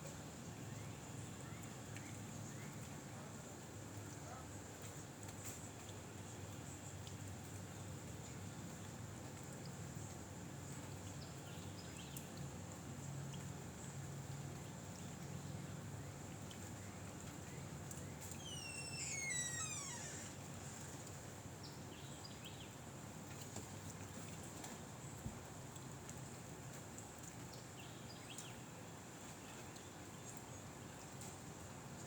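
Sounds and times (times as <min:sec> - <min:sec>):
animal call sliding down: 0:18.4 - 0:21.0.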